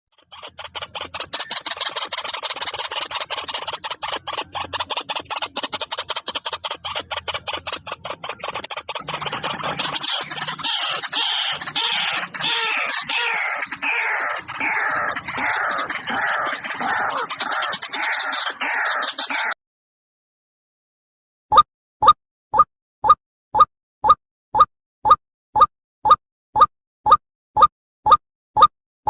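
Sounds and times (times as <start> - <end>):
birds chattering: 0.2 - 19.6.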